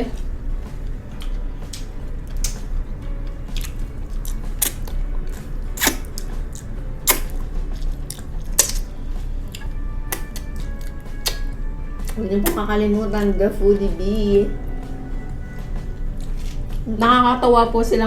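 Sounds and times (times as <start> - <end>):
low hum: 0.0 - 18.0
wet mouth clicks and smacks: 1.2 - 2.7, 3.5 - 8.9, 9.5 - 12.6.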